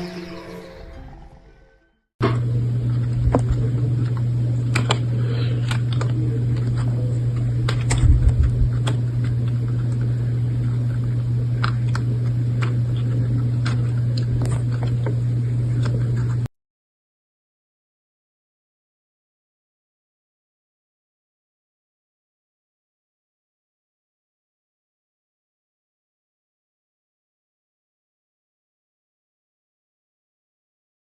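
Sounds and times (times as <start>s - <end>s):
low hum with rushing noise: 2.2s - 16.5s.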